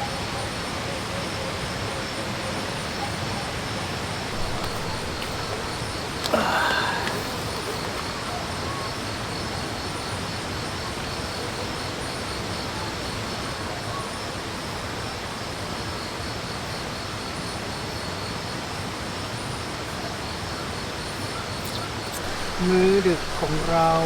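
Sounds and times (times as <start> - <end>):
insects chirping: 4.3 - 10.1, 21.5 - 24.0
waterfall and stream rushing: 22.2 - 24.0.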